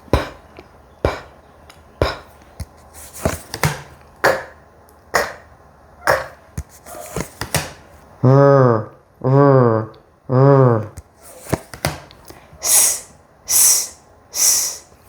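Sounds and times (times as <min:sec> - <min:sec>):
person saying letter sounds: 0:08.2 - 0:11.0.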